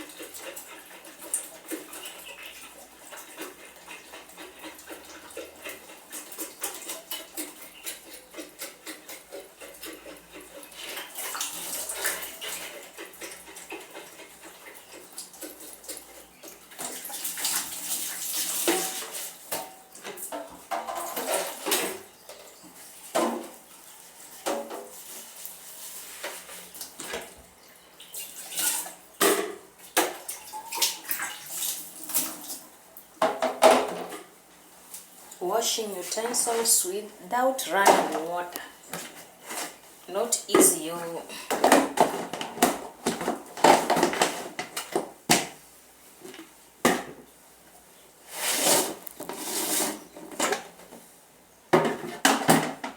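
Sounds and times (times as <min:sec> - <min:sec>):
water sloshing and splashing: 0:22.9 - 0:32.6.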